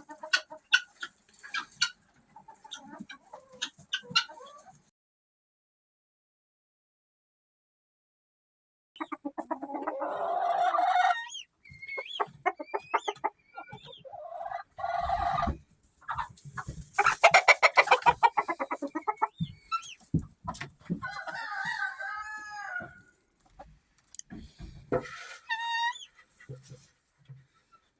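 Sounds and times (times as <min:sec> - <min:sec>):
chickens clucking and cackling: 0:00.0 - 0:04.9, 0:09.0 - 0:27.9
rooster crowing: 0:21.0 - 0:23.0.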